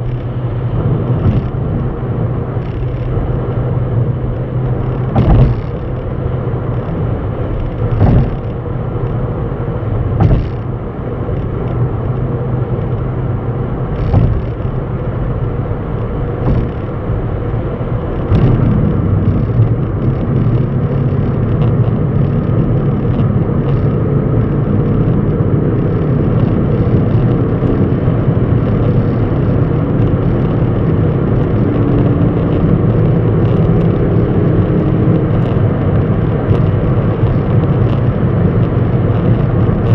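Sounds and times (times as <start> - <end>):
vehicle engine rumbling: 0.0 - 39.9
sharp knocks: 1.1 - 2.0, 4.6 - 6.2, 6.8 - 9.2, 10.1 - 11.8, 13.9 - 15.1, 16.0 - 19.8.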